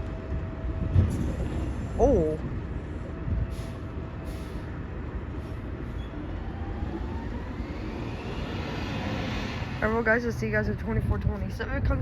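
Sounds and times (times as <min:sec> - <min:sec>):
faint rising whine: 0:06.1 - 0:10.4.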